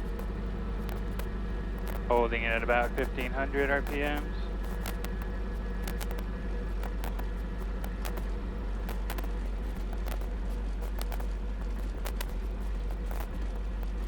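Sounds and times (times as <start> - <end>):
helicopter engine and rotor drone: 0.0 - 14.0
sharp clicks: 0.0 - 14.0.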